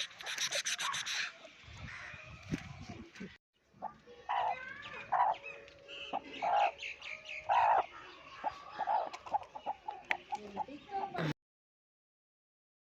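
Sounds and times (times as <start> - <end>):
chickens clucking and calling: 3.8 - 11.2.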